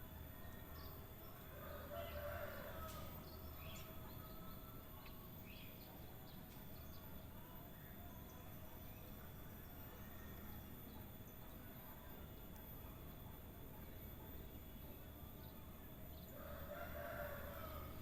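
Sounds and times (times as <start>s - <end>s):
distant rooster crowing: 1.4s - 4.8s, 16.3s - 18.0s.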